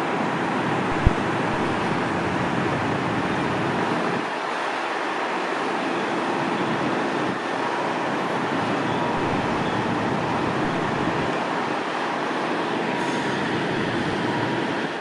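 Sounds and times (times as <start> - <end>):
vehicle rumble: 8.6 - 11.6.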